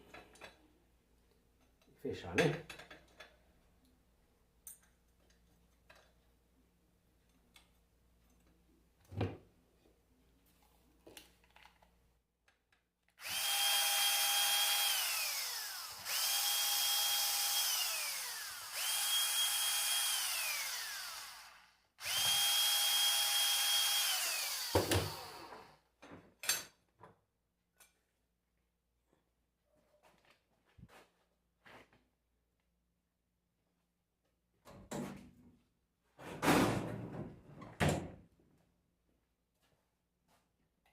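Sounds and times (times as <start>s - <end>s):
power tool motor whining: 13.2s - 25.8s.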